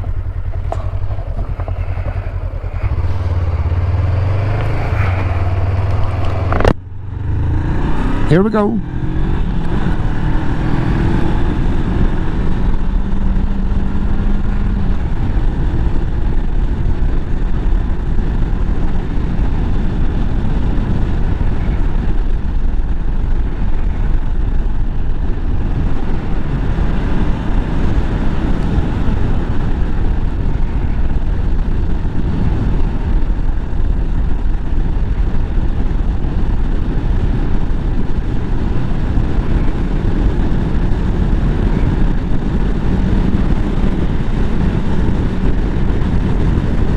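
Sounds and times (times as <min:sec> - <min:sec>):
motorcycle engine running: 0:00.0 - 0:46.9
wind rushing over microphone: 0:00.0 - 0:46.9.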